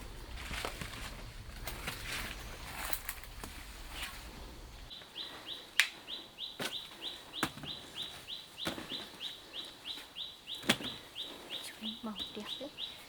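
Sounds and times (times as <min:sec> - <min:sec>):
bird chirping: 0:04.3 - 0:13.0.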